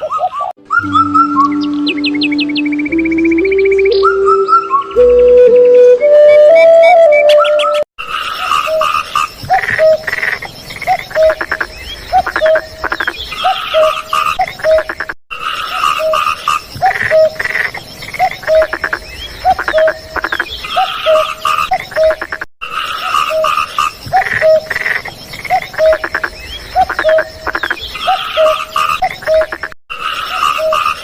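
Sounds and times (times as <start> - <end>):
steady high tone: 0.6 - 6.2
frogs calling: 8.0 - 31.0
rattling frog croaks: 8.2 - 13.2, 13.8 - 31.0.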